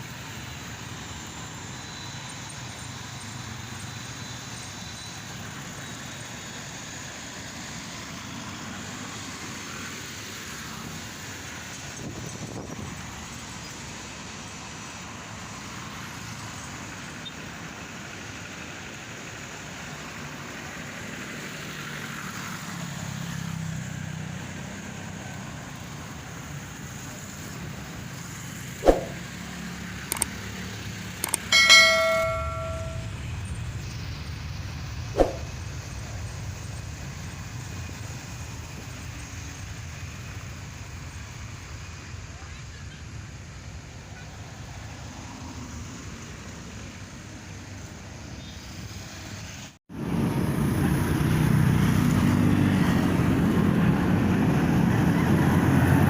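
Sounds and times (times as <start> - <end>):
road vehicle noise: 0.0 - 56.0
short ringing tone: 31.3 - 33.2, 35.2 - 35.5.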